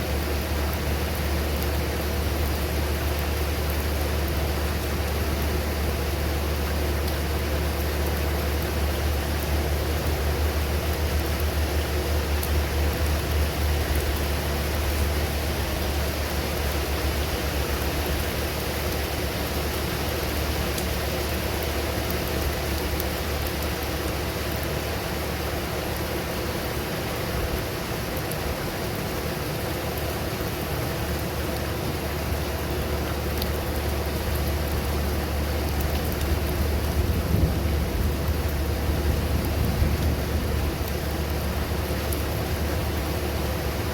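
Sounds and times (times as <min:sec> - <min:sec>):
steady rain hiss: 0:00.0 - 0:43.9
low thunder rumble: 0:36.3 - 0:43.9.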